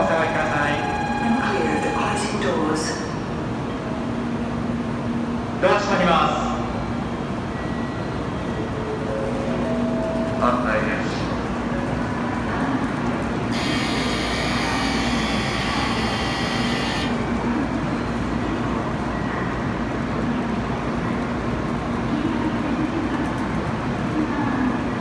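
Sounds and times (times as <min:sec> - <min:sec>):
train rumble moving off: 0:08.2 - 0:25.0.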